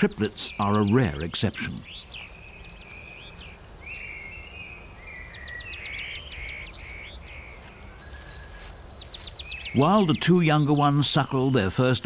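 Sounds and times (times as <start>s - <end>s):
birds chirping and whistling: 0.0s - 12.0s.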